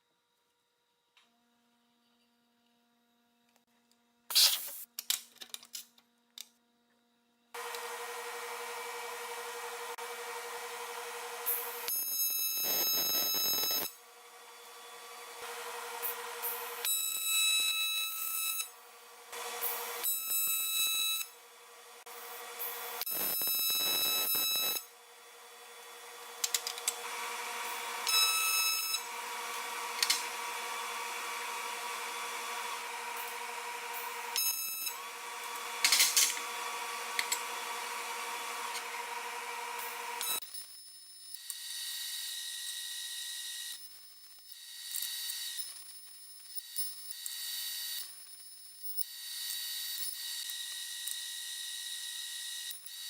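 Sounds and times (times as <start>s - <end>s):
welding arc hissing buzz: 4.3s - 4.9s, 10.9s - 14.0s, 22.1s - 24.9s
welding arc buzzing: 7.6s - 14.0s, 22.0s - 53.0s.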